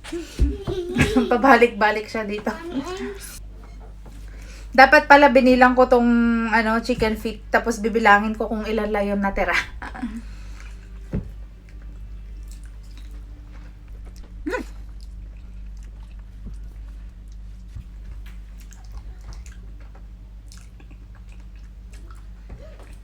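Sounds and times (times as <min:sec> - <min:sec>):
steady low hum: 0:00.0 - 0:23.0
chewing and crunching: 0:10.4 - 0:23.0.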